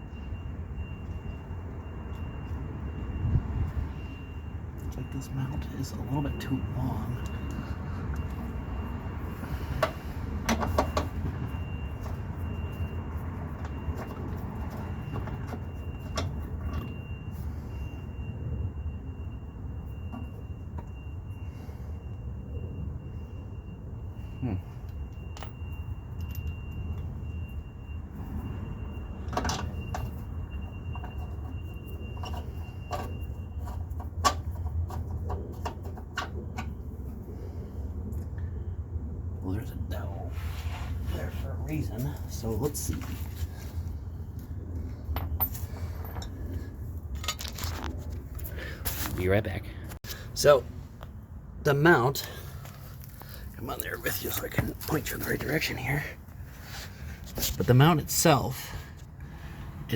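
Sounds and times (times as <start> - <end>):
faint high steady tone: 0.0 - 35.0
steady low rumble: 32.8 - 59.9
metal tools knocking and clinking: 47.2 - 47.9.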